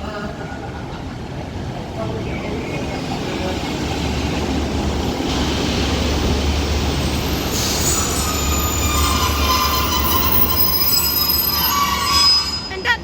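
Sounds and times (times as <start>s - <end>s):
diesel train rumble: 0.0s - 13.0s
train brakes squealing: 5.2s - 13.0s.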